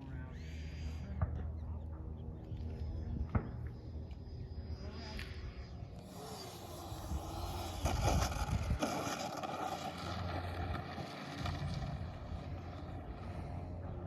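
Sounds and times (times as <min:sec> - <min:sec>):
model airplane motor: 0:04.7 - 0:14.0
wind buffeting microphone: 0:06.6 - 0:13.3.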